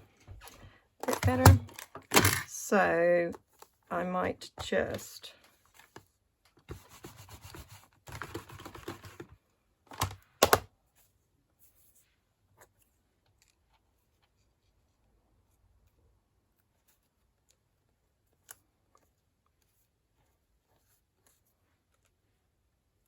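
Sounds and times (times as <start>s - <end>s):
paper and card being rubbed: 6.7s - 9.1s.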